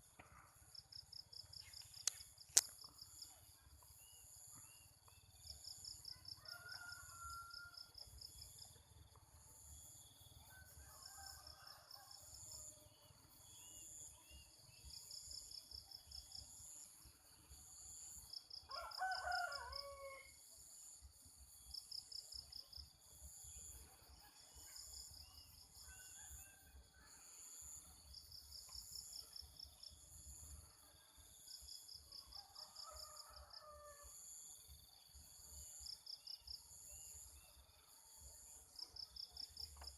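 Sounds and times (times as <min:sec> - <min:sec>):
insects chirping: 0:00.0 - 0:39.9
distant rooster crows: 0:06.0 - 0:08.0, 0:10.5 - 0:12.8, 0:18.7 - 0:20.5, 0:25.8 - 0:27.8, 0:32.2 - 0:34.4
rooster crowing: 0:06.2 - 0:07.9, 0:18.7 - 0:20.4, 0:32.4 - 0:34.2.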